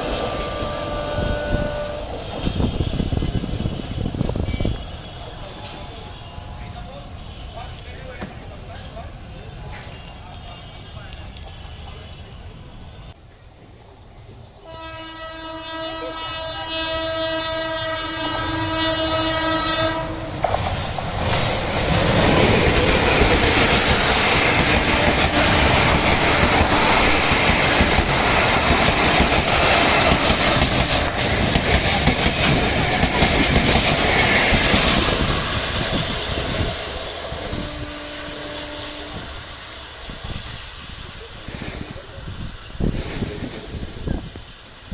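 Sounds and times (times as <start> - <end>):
train horn blast: 0.0 - 7.9, 14.6 - 20.4, 22.2 - 31.8, 36.4 - 39.7
train wheels clattering on rails: 20.2 - 37.8, 41.3 - 44.9.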